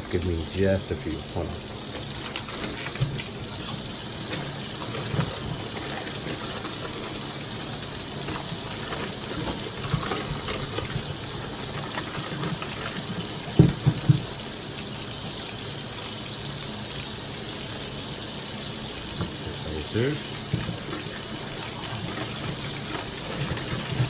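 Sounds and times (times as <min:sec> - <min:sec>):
kitchen tap running: 0:00.0 - 0:24.0
potatoes knocking against sink: 0:08.4 - 0:14.4.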